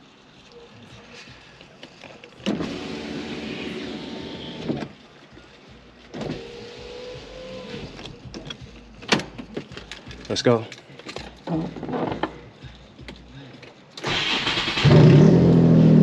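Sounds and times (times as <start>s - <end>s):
power window motor whining: 2.5s - 4.9s, 6.2s - 8.1s.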